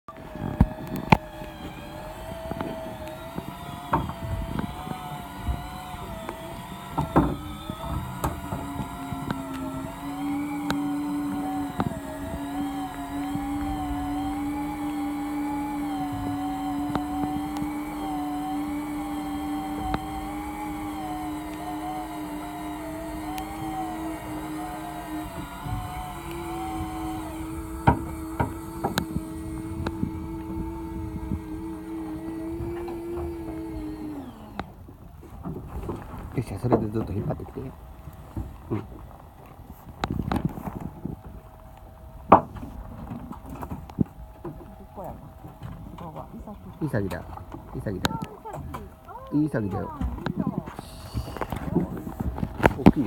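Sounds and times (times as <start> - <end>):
boat motor hum: 0.0 - 53.0
steady tone: 1.0 - 34.6.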